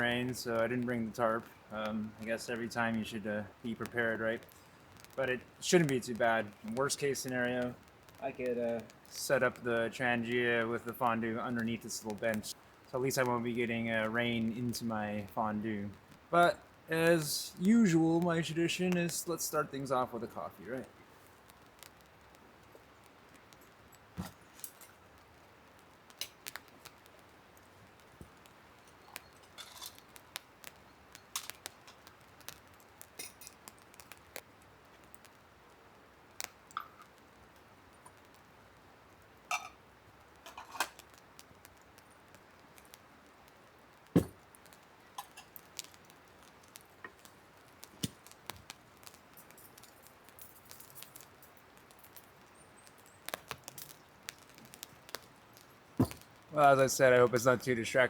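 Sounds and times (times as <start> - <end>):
faint steady hiss: 0.0 - 58.0
camping cookware clinking: 23.5 - 25.1, 28.3 - 32.2, 33.0 - 34.1, 36.4 - 37.2, 39.5 - 39.8, 40.4 - 41.1, 45.0 - 52.2, 53.3 - 57.6.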